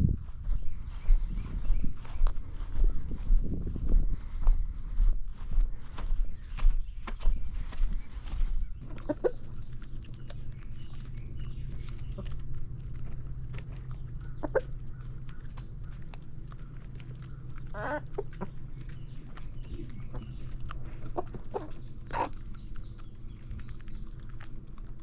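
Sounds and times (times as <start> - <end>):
steady low hum: 0.0 - 25.0
chickens clucking: 8.8 - 25.0.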